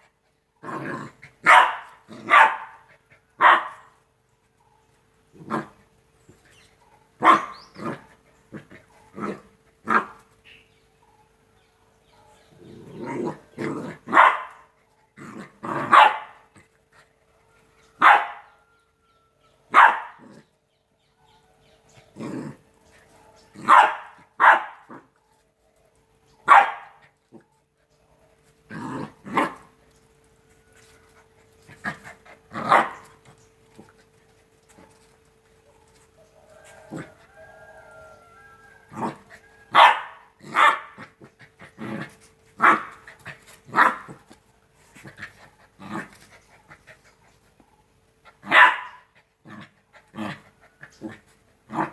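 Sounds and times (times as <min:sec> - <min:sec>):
puppies barking: 0:00.8 - 0:04.0, 0:06.8 - 0:10.2, 0:13.0 - 0:14.8, 0:15.6 - 0:16.6, 0:18.0 - 0:18.6, 0:19.7 - 0:20.4, 0:23.1 - 0:25.2, 0:26.4 - 0:27.1, 0:31.7 - 0:33.4, 0:38.9 - 0:44.3, 0:48.2 - 0:51.9.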